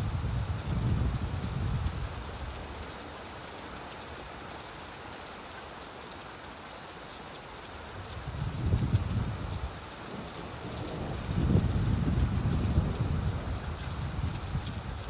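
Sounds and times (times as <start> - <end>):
low rumble of thunder: 0.0 - 2.5, 8.2 - 15.0
steady rain falling: 0.0 - 15.0.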